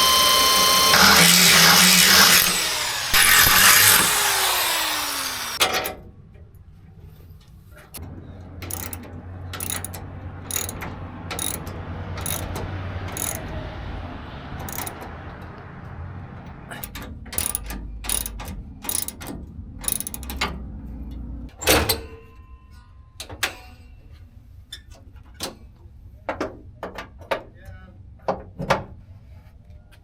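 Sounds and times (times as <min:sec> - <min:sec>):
ratchet wrench clicking: 0:00.0 - 0:05.6, 0:08.6 - 0:09.0, 0:09.6 - 0:13.5, 0:14.6 - 0:15.0, 0:16.7 - 0:20.4.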